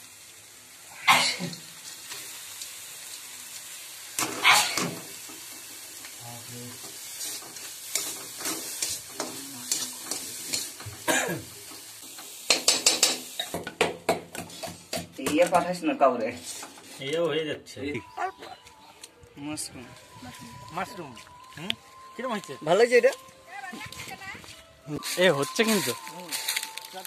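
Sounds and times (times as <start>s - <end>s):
food sizzling in oil: 0.0s - 17.1s, 19.6s - 27.0s
spatula scraping pan: 14.4s - 15.0s.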